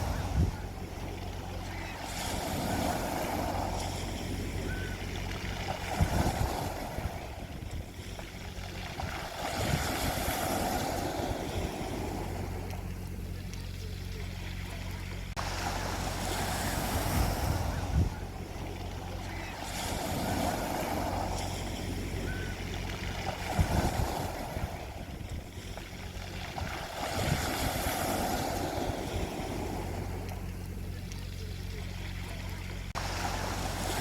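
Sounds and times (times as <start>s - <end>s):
steady low hum: 0.0s - 34.0s
waves washing onto beach: 0.0s - 34.0s.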